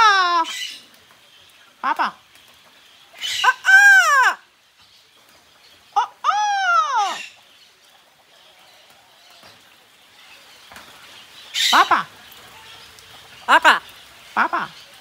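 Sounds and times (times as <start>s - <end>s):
parrot squawking: 3.2s - 4.4s, 6.0s - 7.4s.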